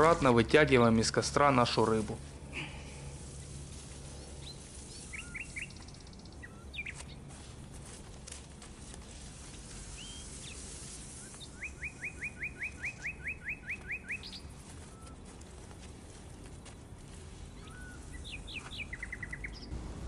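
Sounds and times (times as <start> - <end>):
small songbird singing: 4.2 - 7.2, 9.9 - 15.2, 17.4 - 19.8.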